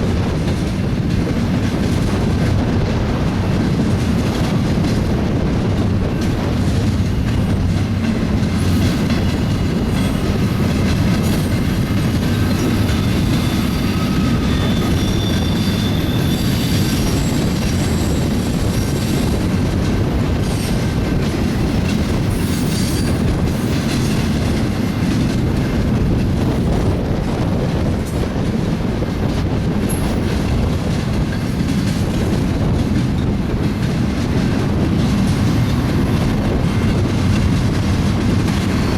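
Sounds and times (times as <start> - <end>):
train wheels clacking over rail joints: 0.0 - 38.9
high wheel squeals: 12.4 - 19.2.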